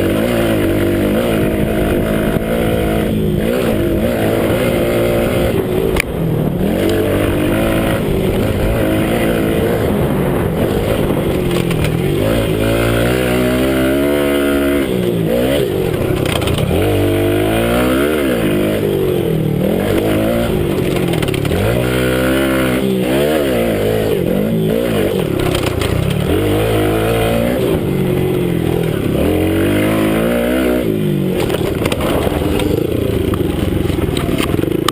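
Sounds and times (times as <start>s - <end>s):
minibike engine revving: 0.0s - 34.9s.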